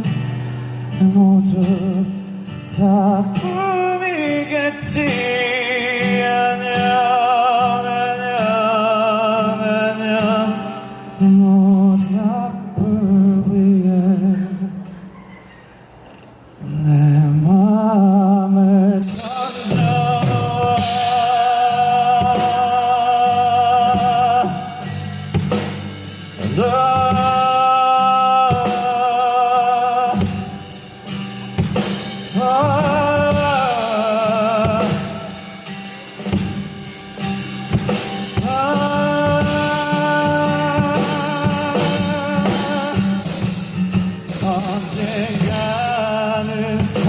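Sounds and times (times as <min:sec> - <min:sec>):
live band playing a ballad: 0:00.0 - 0:15.1, 0:16.7 - 0:47.0
singer holding long notes: 0:16.6 - 0:31.2, 0:31.8 - 0:36.4, 0:38.1 - 0:47.0.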